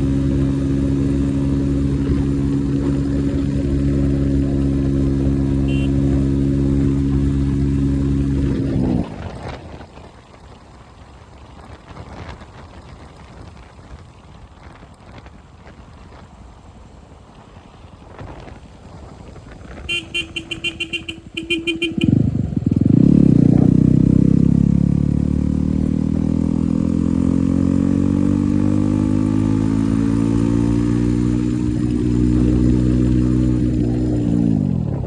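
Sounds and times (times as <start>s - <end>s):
motorcycle engine idling: 0.0s - 8.4s, 19.8s - 26.5s.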